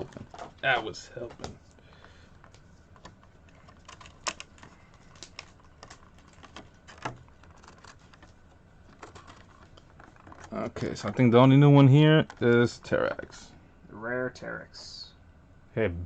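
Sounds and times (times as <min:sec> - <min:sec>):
packaging rustling: 0:02.1 - 0:11.4.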